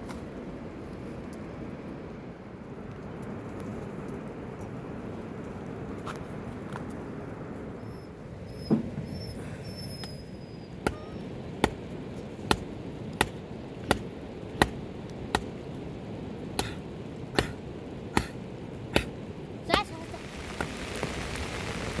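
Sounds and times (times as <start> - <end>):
rain hissing: 5.4 - 22.0
chopping strokes: 12.4 - 15.5, 16.6 - 16.8, 17.4 - 17.6, 18.2 - 19.9.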